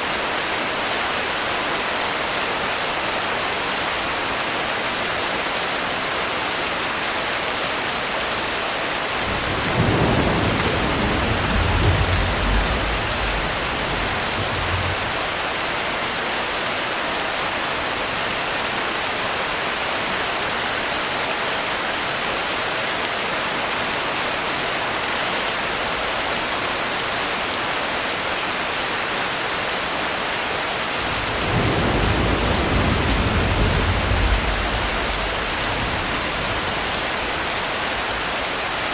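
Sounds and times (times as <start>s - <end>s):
heavy rain: 0.0s - 38.9s
thunder rolling: 9.2s - 15.8s, 31.0s - 38.5s.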